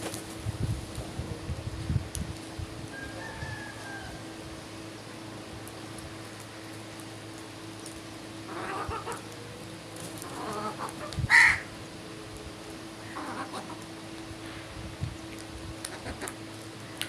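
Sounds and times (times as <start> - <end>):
steady low hum: 0.0 - 17.0
harsh bird calls: 10.2 - 11.7.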